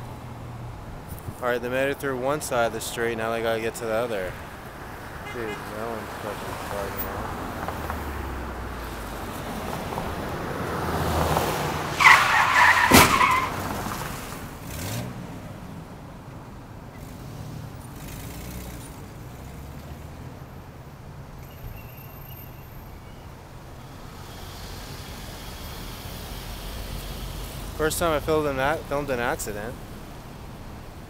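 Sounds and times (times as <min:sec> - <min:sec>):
car tyres screeching: 0:00.0 - 0:15.8, 0:21.3 - 0:31.0
road traffic: 0:00.0 - 0:31.0
car collision crash: 0:12.1 - 0:14.5.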